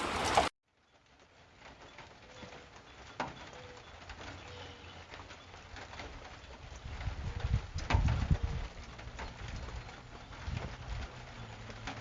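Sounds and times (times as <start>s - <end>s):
dove cooing: 2.2s - 5.5s.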